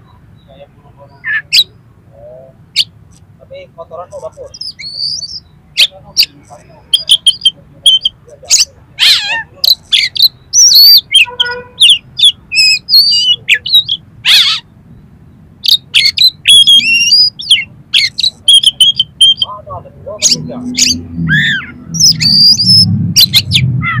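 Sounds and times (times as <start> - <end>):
bird singing whistles and chirps: 4.5 - 6.3, 9.7 - 14.0, 15.7 - 19.6, 20.2 - 23.7.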